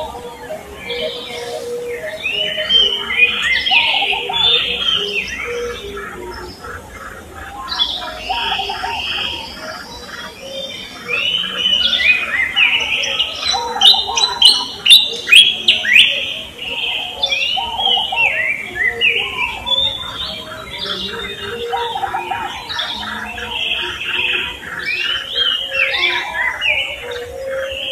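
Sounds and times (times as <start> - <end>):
birds chirping and singing: 0.0 - 27.9.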